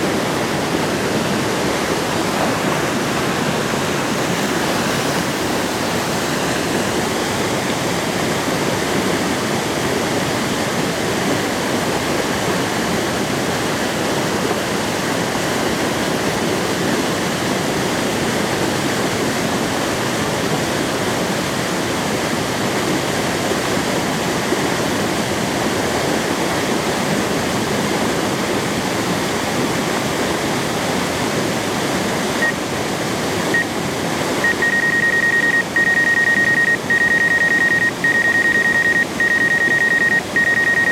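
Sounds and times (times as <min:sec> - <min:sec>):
waterfall rushing: 0:00.0 - 0:40.9
thin high tone: 0:34.4 - 0:40.9.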